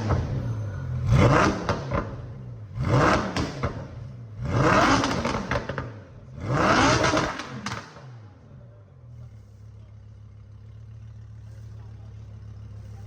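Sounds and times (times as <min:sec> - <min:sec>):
car engine revving: 0:00.0 - 0:08.6
car engine idling: 0:07.5 - 0:13.0.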